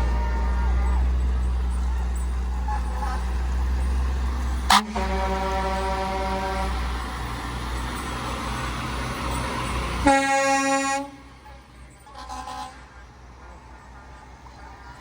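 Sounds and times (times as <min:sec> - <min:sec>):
heavy engine rumble: 0:00.0 - 0:15.0
air horn blasts: 0:04.7 - 0:07.0, 0:10.0 - 0:11.3, 0:12.2 - 0:12.9.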